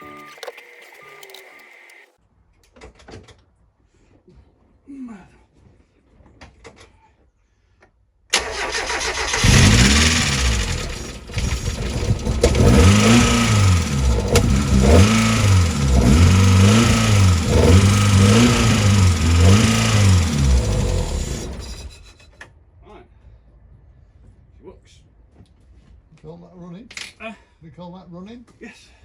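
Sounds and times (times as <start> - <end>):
car engine cranking and starting: 8.3 - 22.2
car engine revs rising and falling: 9.1 - 22.0.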